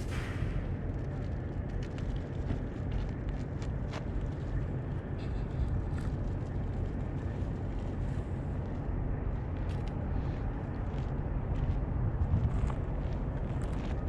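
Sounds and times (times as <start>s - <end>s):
wind buffeting microphone: 7.9s - 14.0s.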